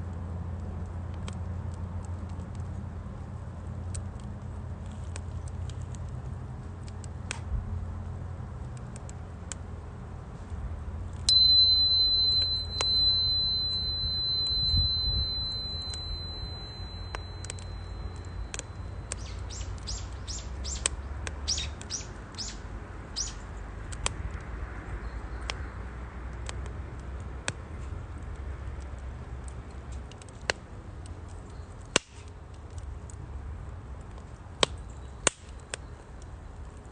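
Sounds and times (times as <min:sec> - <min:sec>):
wood fire crackling and popping: 0:00.6 - 0:11.4, 0:14.2 - 0:22.5, 0:26.3 - 0:36.9
short high chirps: 0:11.3 - 0:19.7
steady high whistle: 0:11.3 - 0:19.7.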